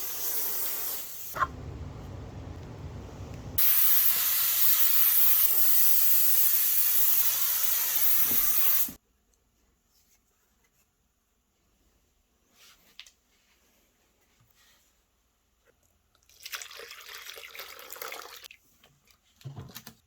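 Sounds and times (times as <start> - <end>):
aerosol spray can hissing: 0.0 - 1.4, 3.6 - 9.0
low rushing sound: 1.4 - 3.6.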